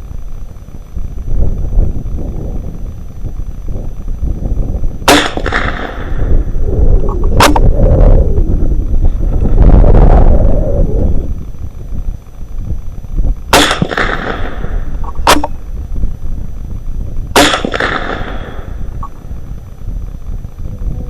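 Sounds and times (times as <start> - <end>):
rifle shots with echo: 5.0 - 6.5, 13.5 - 15.6, 17.4 - 18.9.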